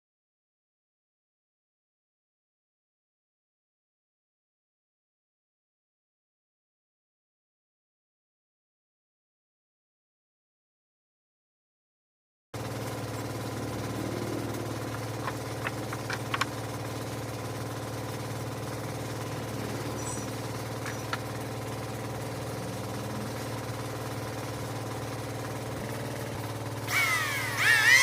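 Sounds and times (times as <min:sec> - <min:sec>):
machine hum: 0:12.6 - 0:28.0.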